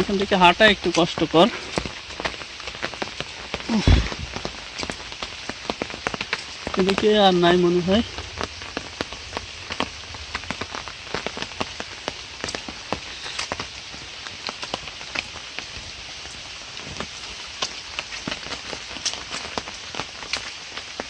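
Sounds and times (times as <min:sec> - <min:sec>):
rain falling: 0:00.0 - 0:21.0
raindrops tapping: 0:00.0 - 0:21.0.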